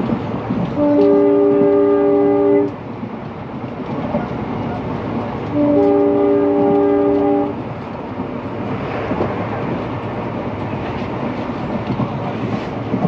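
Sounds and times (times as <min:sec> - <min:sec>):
train rumbling: 0:00.0 - 0:13.0
locomotive air horn blast: 0:00.8 - 0:02.8, 0:05.5 - 0:07.6.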